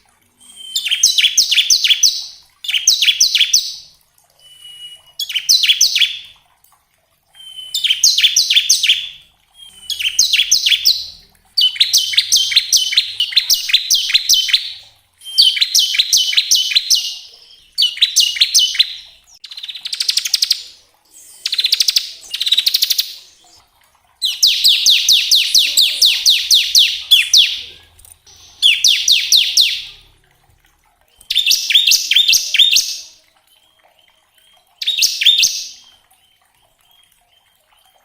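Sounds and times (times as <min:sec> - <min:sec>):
thin bird whistle: 0:00.4 - 0:06.3, 0:07.3 - 0:23.6
bird singing rattling trills: 0:00.4 - 0:06.4, 0:07.4 - 0:20.6, 0:24.2 - 0:30.1, 0:31.2 - 0:38.0.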